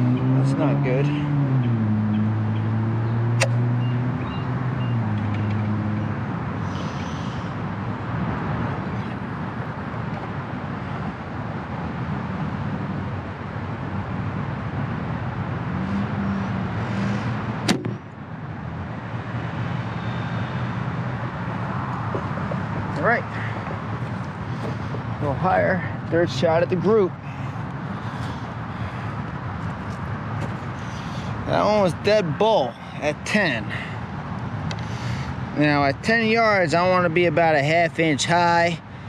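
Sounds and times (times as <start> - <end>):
vehicle engine passing: 0.0 - 9.6, 15.3 - 35.2
traffic noise: 0.0 - 39.0
bow shot snap: 3.4 - 3.6.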